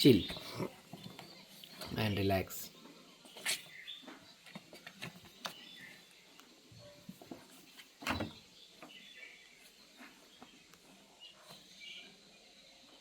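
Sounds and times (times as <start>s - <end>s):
cats playing taps and scratches: 3.3s - 5.7s
faint high chirps: 5.2s - 13.0s.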